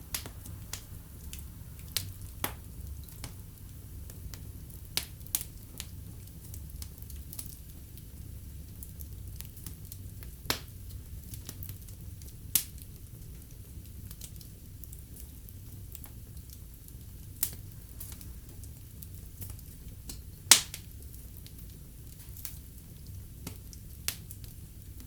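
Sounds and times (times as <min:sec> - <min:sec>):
low rumble of flames: 0:00.0 - 0:25.0
loud sharp pops from logs: 0:20.5 - 0:20.8.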